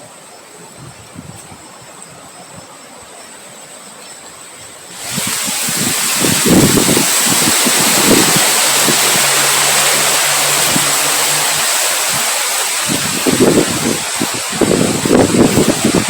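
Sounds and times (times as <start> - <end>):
strong wind blowing: 4.9 - 16.0
wind gusts rumbling on microphone: 4.9 - 16.0.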